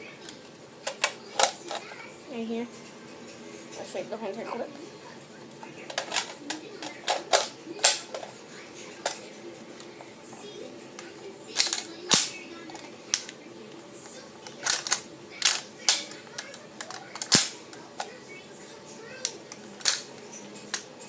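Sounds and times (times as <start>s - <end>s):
toy gun clicks and knocks: 14.4s - 18.1s.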